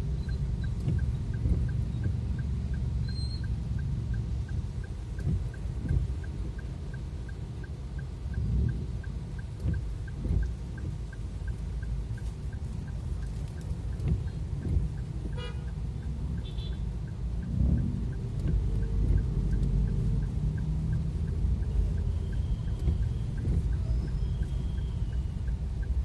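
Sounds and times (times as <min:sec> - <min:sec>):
faint fast ticking: 0:00.0 - 0:26.0
traffic rumble in heavy rain: 0:00.0 - 0:26.0
vehicle horns: 0:15.4 - 0:15.7, 0:16.4 - 0:16.8.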